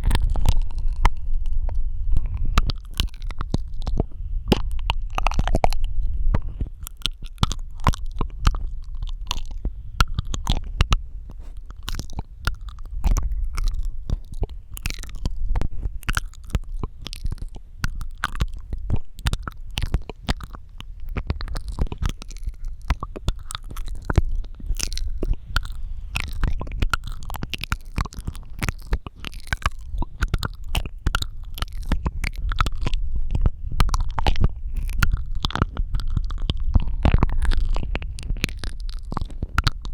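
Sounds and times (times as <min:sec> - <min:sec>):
steady low rumble: 0:00.0 - 0:39.9
wet mouth clicks and smacks: 0:00.0 - 0:39.9.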